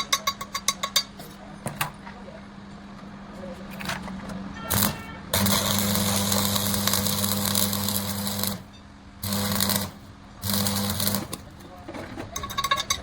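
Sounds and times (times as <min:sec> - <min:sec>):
metalworking tool crackling hiss: 0:04.7 - 0:11.5.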